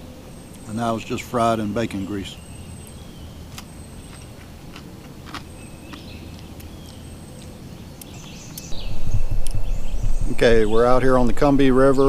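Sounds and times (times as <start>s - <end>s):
low background rumble: 0.0s - 12.0s
high bird chirps: 5.4s - 12.0s.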